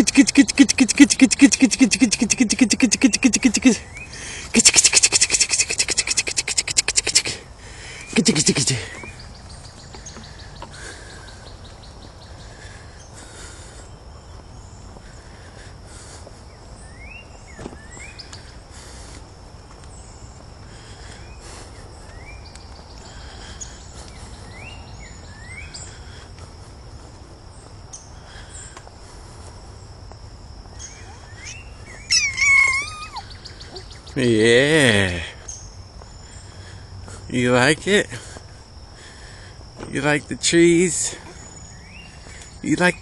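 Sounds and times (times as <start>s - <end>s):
short rising bird chirps: 0.0s - 7.3s, 30.8s - 34.2s
high insect trill: 0.0s - 43.0s
cat meowing loudly: 32.1s - 33.2s.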